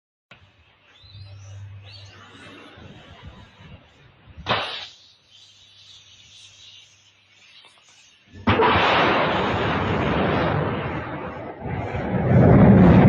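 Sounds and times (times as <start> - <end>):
rocket engines roaring: 8.4 - 13.0.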